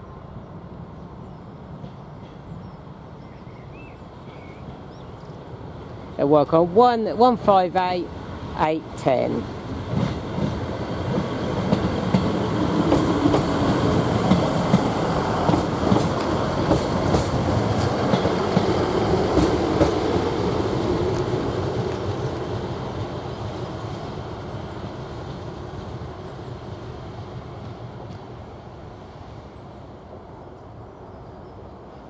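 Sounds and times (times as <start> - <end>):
train wheels clicking over rail joints: 9.8 - 22.2.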